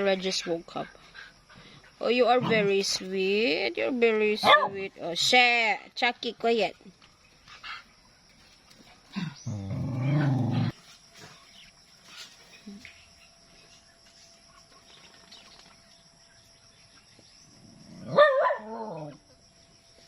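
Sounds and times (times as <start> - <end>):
dog growling: 9.2 - 10.8.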